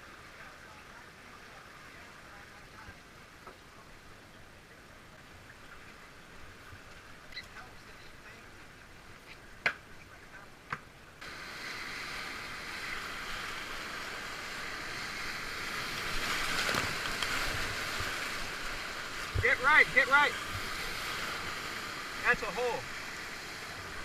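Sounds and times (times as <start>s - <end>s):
whitewater rapids rushing: 11.2s - 24.0s.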